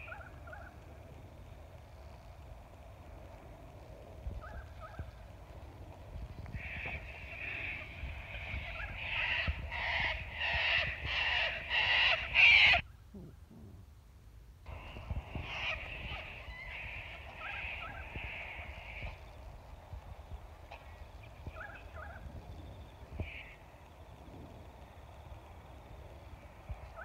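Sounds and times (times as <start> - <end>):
birds making harsh calls: 6.4 - 12.8, 14.7 - 19.3, 23.1 - 23.8.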